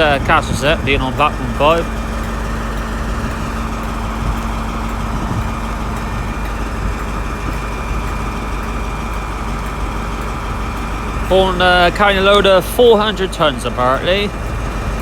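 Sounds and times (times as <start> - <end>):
freight train rumbling: 0.0 - 15.0
low hum: 0.0 - 15.0.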